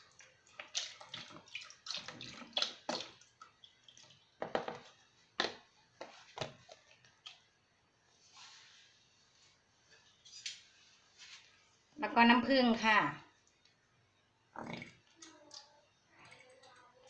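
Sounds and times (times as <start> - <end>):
liquid dripping and splashing into pot: 0.0 - 5.7.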